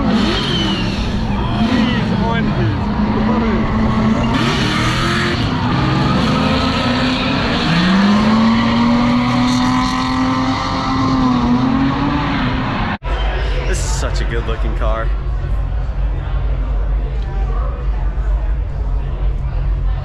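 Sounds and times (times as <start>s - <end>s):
car engine revving hard: 0.0s - 13.0s
loud busy background noise: 0.0s - 20.0s.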